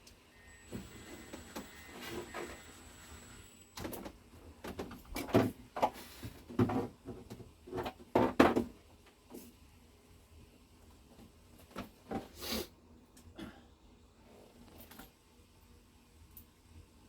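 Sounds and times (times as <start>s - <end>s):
faint high whine: 0.0s - 4.4s
hard parts knocking and clattering: 6.5s - 8.8s.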